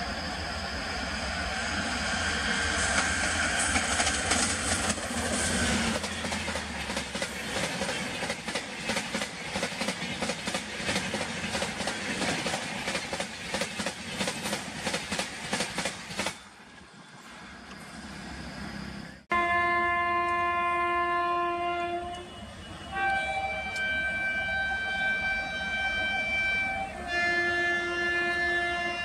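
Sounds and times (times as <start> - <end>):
locomotive hum: 0.0 - 29.0
train passing at high speed: 0.0 - 29.0
train wheel clicks: 2.9 - 16.4.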